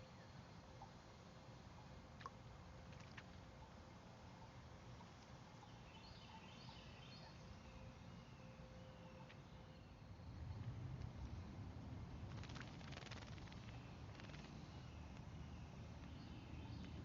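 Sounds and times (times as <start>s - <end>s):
songbird chirping: 3.6s - 10.7s, 13.7s - 17.0s.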